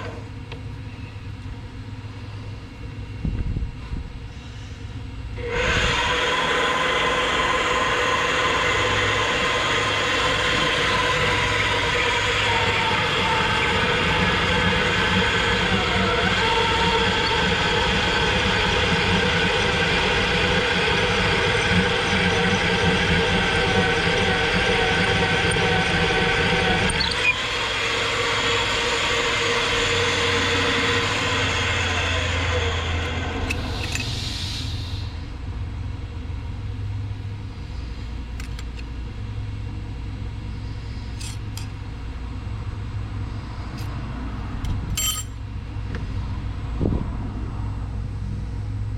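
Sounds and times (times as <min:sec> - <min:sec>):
low hum: 0:00.0 - 0:48.9
drill motor running: 0:05.4 - 0:34.8
motor winding down: 0:05.4 - 0:35.0.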